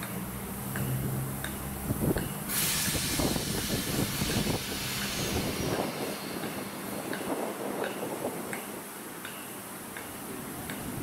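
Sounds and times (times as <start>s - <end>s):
air hiss: 1.9s - 9.0s
train wheels knocking over rail joints: 2.9s - 8.2s.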